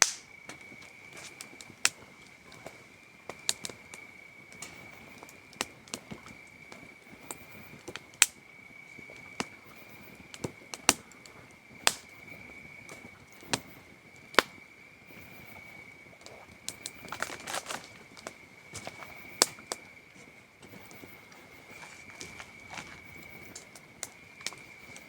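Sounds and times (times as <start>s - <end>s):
campfire crackling and popping: 0.0s - 25.0s
crickets trilling: 0.0s - 25.0s.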